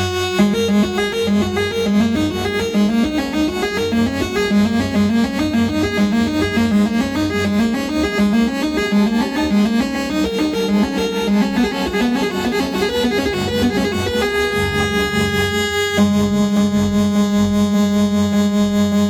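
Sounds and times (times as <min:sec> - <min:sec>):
held synthesizer chord: 0:00.0 - 0:19.0
synthesizer sequence: 0:00.8 - 0:16.7
low synth drone: 0:10.6 - 0:17.1.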